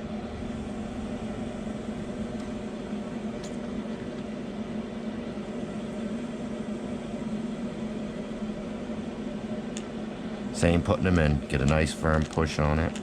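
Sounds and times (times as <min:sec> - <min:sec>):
appliance humming: 0:00.0 - 0:13.0.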